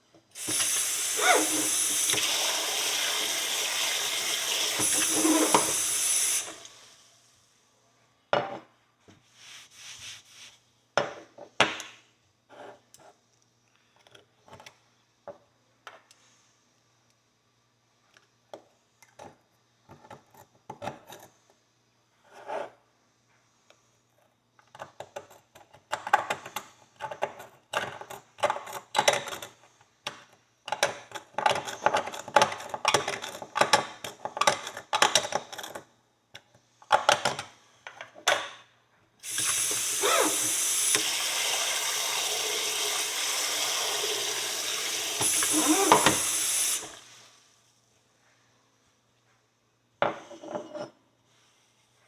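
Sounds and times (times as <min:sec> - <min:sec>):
water tap running: 0:00.4 - 0:06.9, 0:39.2 - 0:47.3.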